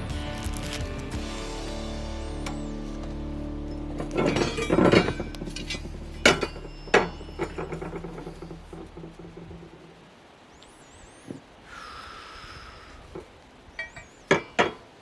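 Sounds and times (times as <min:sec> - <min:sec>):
background music: 0:00.0 - 0:08.0
metal rebar clinking: 0:02.2 - 0:09.4.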